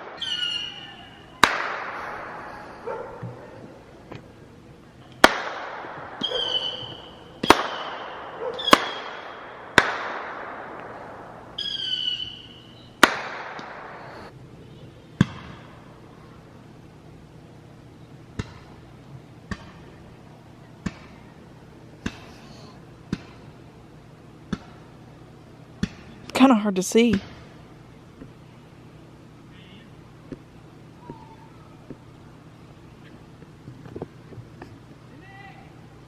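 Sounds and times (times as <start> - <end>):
firework whistles: 0.0 - 2.8, 6.2 - 9.9, 11.5 - 14.3
fireworks bangs: 0.0 - 4.3, 5.2 - 14.3.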